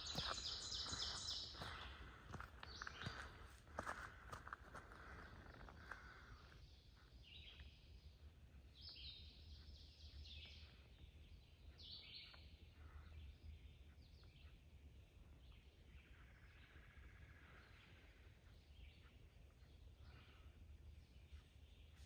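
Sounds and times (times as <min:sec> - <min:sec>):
songbird singing: 0:00.0 - 0:04.6, 0:05.3 - 0:22.0.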